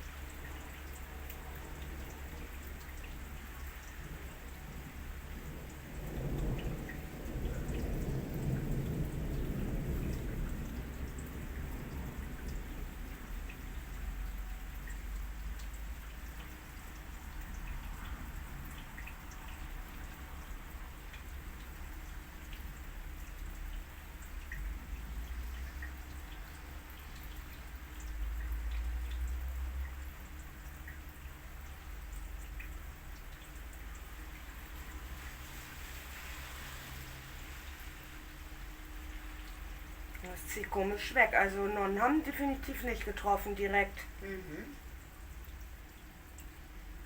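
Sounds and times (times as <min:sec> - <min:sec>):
low rain rumble: 0:00.0 - 0:47.0
rain drips ticking: 0:00.0 - 0:47.0.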